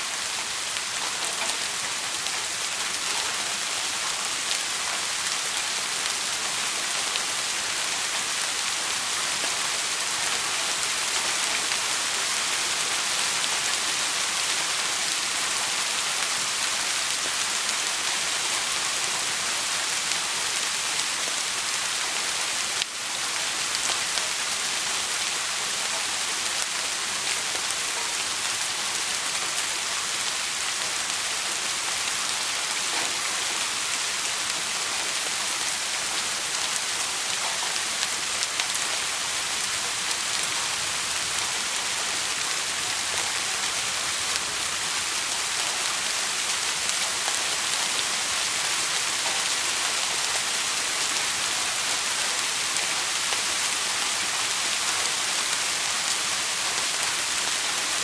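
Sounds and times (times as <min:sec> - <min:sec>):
steady rain falling: 0:00.0 - 0:58.0
faint raindrop ticks: 0:32.8 - 0:33.6.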